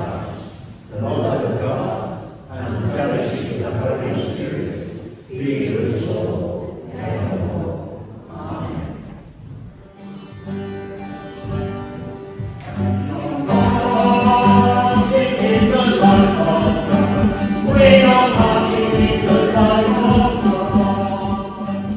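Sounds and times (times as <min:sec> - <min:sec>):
voices singing: 0:00.0 - 0:09.4, 0:12.6 - 0:21.9
guitar: 0:08.3 - 0:21.9.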